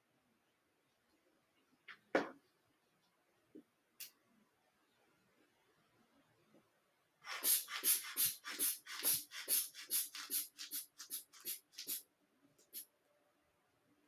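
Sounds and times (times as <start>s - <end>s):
hand bulb squeezing air puffs: 7.3s - 12.0s.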